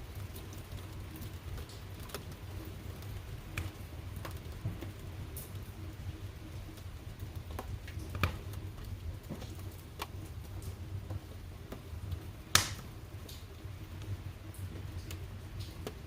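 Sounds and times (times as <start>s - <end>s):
fire low rumble: 0.0s - 16.0s
wood fire crackling and snapping: 0.0s - 16.0s
sharp loud pop of fire: 12.6s - 12.8s.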